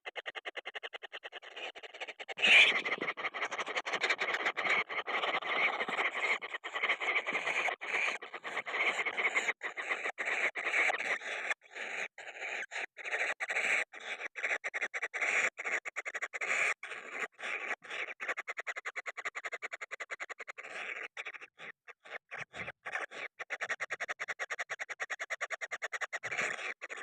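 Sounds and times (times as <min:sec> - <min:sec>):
bird chicks begging calls: 0:01.4 - 0:09.4.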